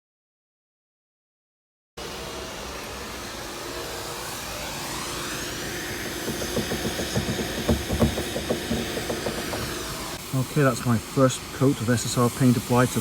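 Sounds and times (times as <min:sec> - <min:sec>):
irregular low knocking: 0:06.3 - 0:09.9.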